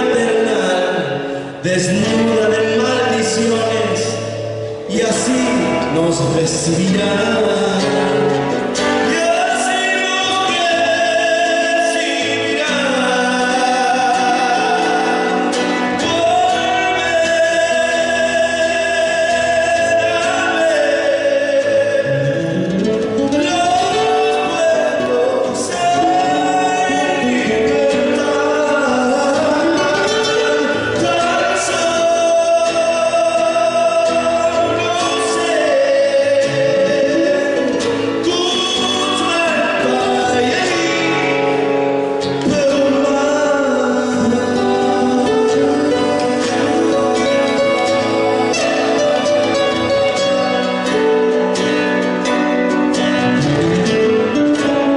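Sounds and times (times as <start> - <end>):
instrumental accompaniment: 0.0 - 54.9
voices singing: 23.4 - 50.9.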